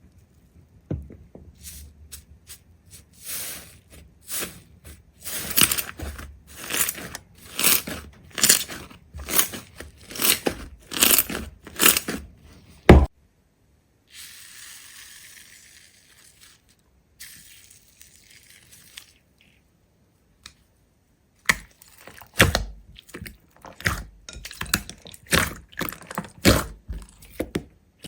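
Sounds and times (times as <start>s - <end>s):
crunching strokes: 1.6s - 13.1s.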